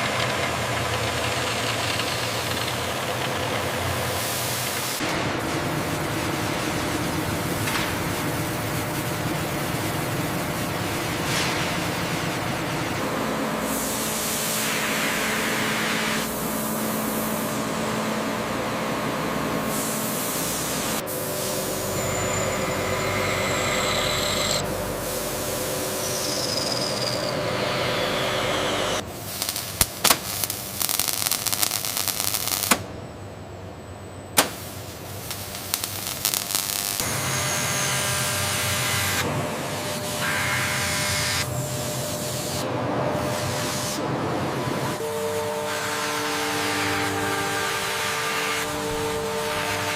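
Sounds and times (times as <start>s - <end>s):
factory machine hissing: 0.0s - 33.7s, 34.4s - 49.9s
machinery running: 5.0s - 29.8s, 34.6s - 49.9s
sharp clicks and crackles: 35.3s - 37.0s.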